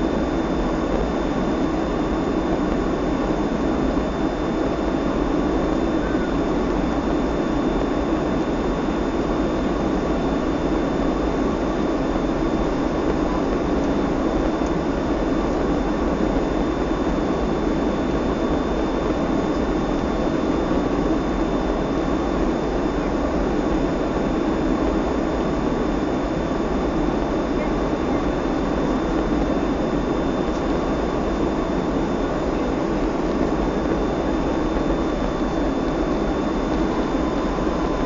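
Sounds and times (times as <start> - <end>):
airplane cabin engine drone: 0.0 - 38.0
thin high whine: 0.0 - 38.0.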